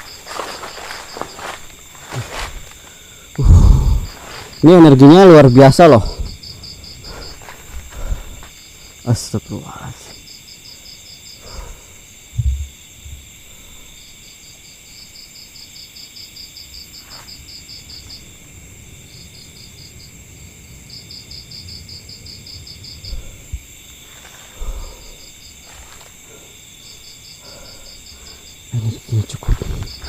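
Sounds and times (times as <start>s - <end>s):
insects chirping: 0.0s - 30.0s
low thumps: 12.3s - 13.4s.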